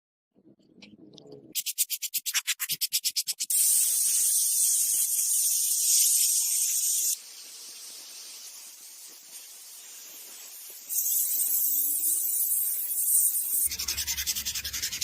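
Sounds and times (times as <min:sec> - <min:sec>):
steady high hiss: 0:03.5 - 0:13.7.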